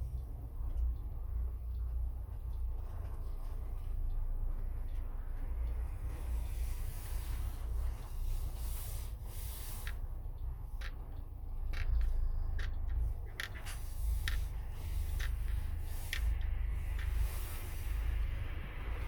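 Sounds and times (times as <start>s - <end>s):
road rumble: 0.0s - 19.0s
small clicks and rattles: 9.7s - 18.4s.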